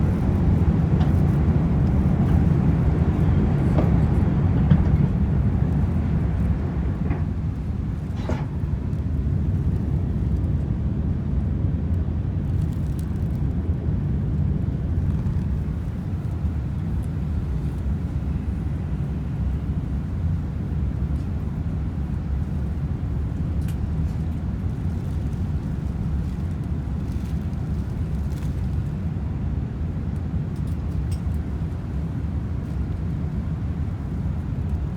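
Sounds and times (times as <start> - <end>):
jet engines rumbling: 0.0 - 10.6.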